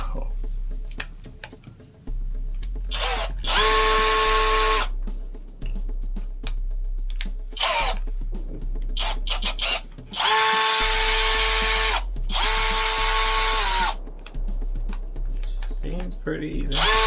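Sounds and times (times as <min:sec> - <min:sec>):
cordless drill running: 0:02.9 - 0:04.9, 0:07.6 - 0:08.0, 0:09.0 - 0:14.0, 0:16.8 - 0:17.0.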